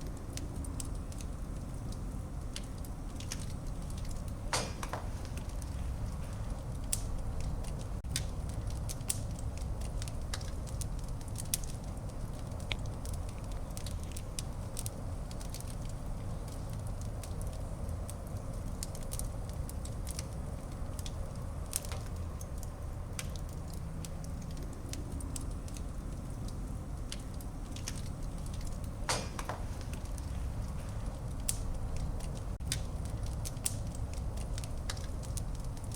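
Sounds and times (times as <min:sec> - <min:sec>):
fire crackling and popping: 0:00.0 - 0:35.9
low rumble of flame: 0:00.0 - 0:35.9.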